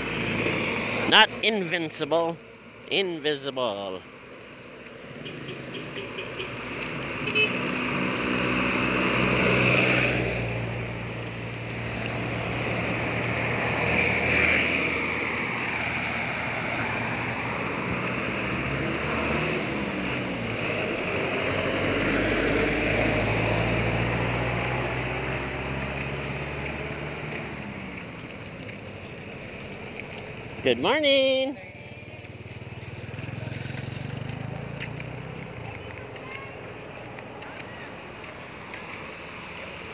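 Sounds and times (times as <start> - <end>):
vehicles passing on street: 0.0 - 39.9
car horn toot: 7.2 - 7.6.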